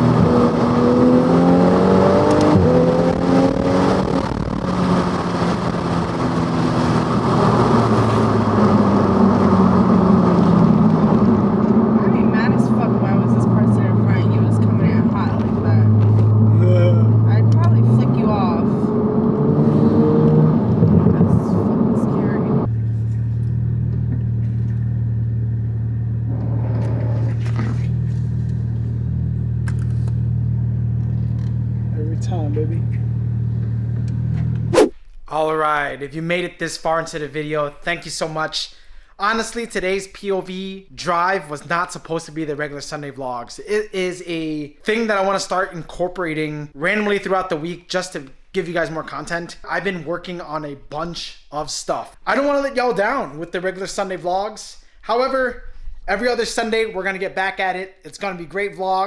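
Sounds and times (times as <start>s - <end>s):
car engine accelerating hard: 0.0s - 34.9s
brief rushing noise: 34.7s - 35.0s.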